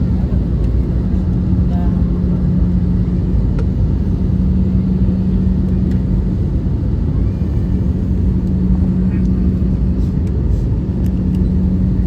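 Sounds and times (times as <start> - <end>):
airliner cabin engine rumble: 0.0 - 12.0
low hum: 0.0 - 12.0.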